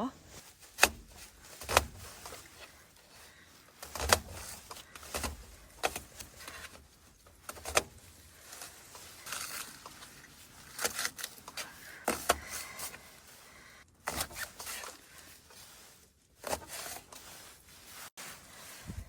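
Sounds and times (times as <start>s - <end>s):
cooking gear clicks and knocks: 3.8s - 13.0s.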